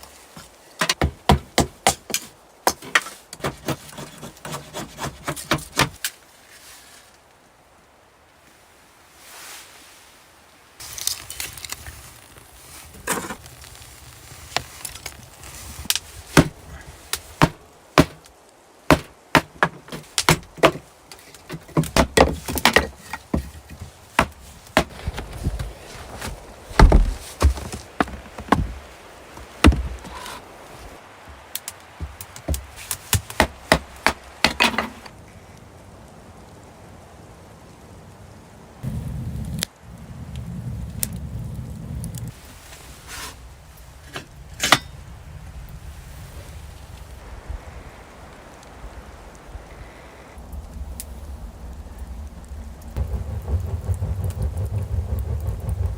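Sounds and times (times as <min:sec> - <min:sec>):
wood being chopped: 0:00.8 - 0:06.0, 0:15.9 - 0:18.3, 0:18.9 - 0:28.8, 0:29.4 - 0:30.3, 0:32.0 - 0:35.0.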